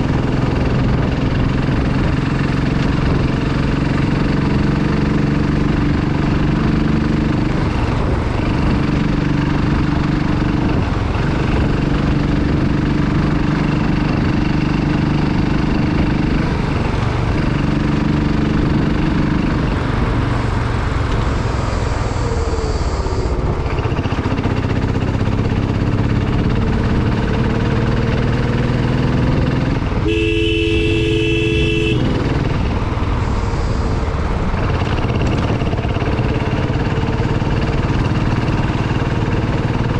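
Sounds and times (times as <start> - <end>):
motorcycle engine running: 0.0 - 39.9
vehicle horn: 30.0 - 32.7.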